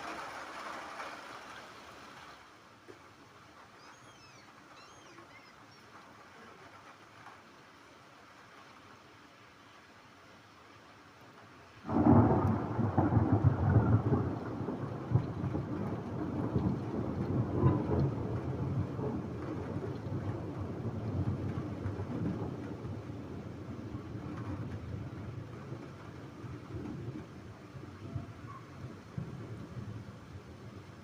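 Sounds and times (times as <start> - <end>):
thunder clap and rumble: 11.9 - 31.0.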